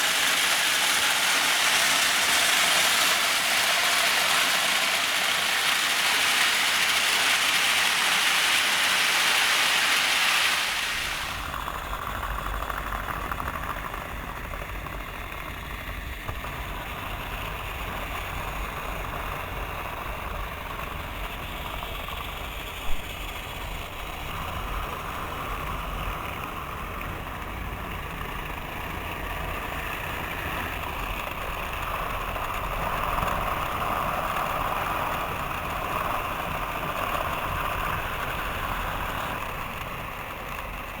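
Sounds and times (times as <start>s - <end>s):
loud hiss: 0.0s - 11.6s
model train motors rumbling: 0.0s - 41.0s.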